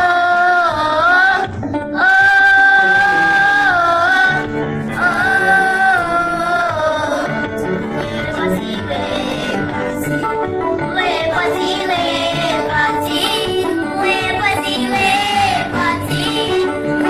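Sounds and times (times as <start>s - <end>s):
gospel hymn singing: 0.0s - 17.0s
low musical accompaniment: 0.0s - 17.0s.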